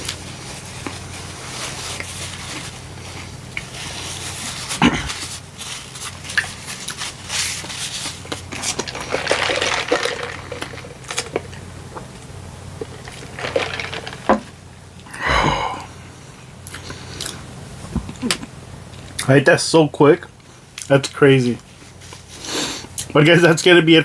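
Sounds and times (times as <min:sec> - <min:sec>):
brief vocal sound: 0:15.1 - 0:16.0.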